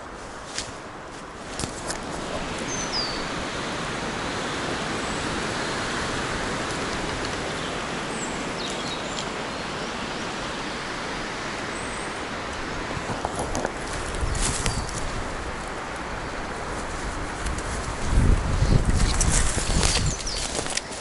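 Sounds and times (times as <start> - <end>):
wind through trees: 0.0 - 21.0
faint bird chirps: 2.6 - 3.3.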